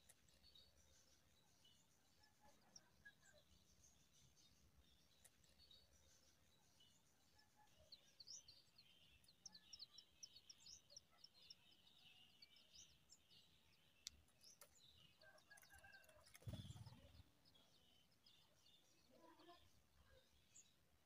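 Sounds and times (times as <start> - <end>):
lower bird chirps: 4.2 - 20.8.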